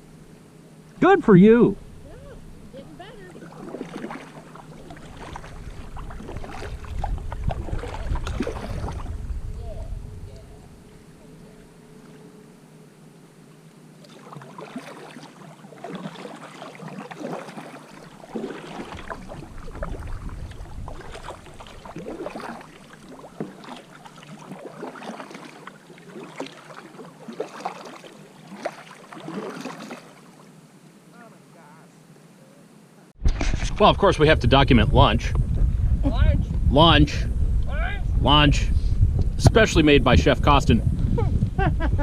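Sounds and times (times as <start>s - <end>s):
paddle strokes splashing water: 2.0s - 9.5s, 13.9s - 31.6s.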